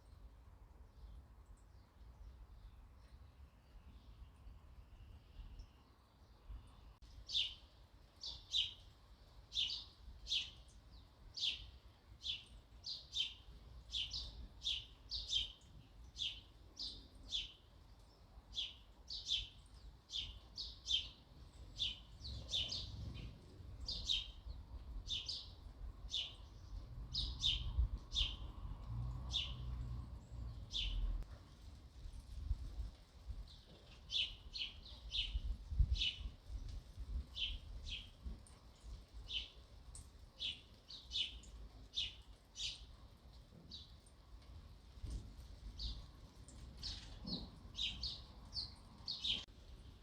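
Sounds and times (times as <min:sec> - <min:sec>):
sparrow chirping: 0:11.4 - 0:17.7, 0:18.5 - 0:28.5, 0:29.3 - 0:29.8, 0:30.5 - 0:31.1, 0:46.8 - 0:49.5.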